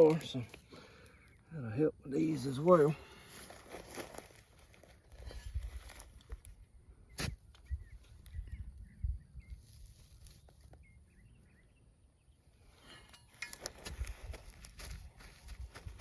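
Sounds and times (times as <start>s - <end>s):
crunching footsteps on ground: 2.7s - 6.5s, 13.3s - 16.0s.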